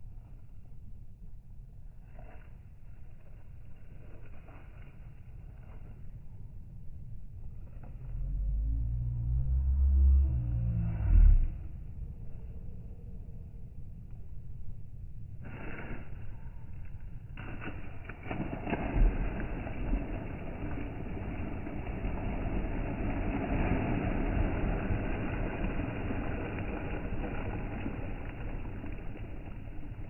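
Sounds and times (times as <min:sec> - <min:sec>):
car rumble from inside cabin: 0:08.2 - 0:11.8.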